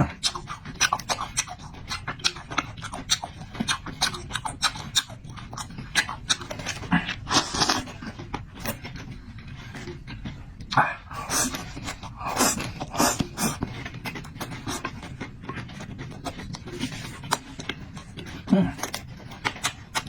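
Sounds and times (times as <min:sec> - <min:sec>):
person chewing with wet smacks: 0:00.0 - 0:20.0
breathy slurp: 0:10.7 - 0:15.0.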